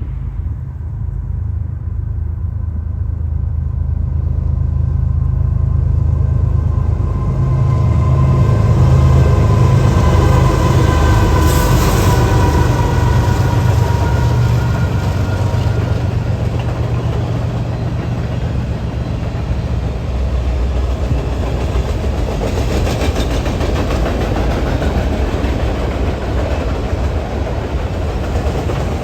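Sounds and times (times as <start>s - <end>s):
train rumbling: 0.0s - 29.0s.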